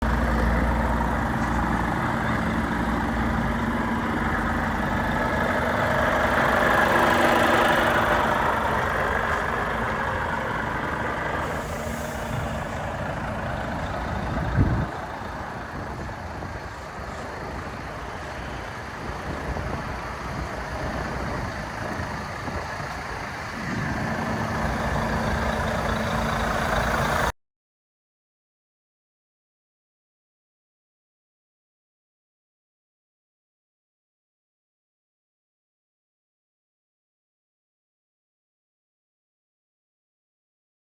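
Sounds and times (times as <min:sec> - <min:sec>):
diesel truck engine idling: 0:00.0 - 0:27.3.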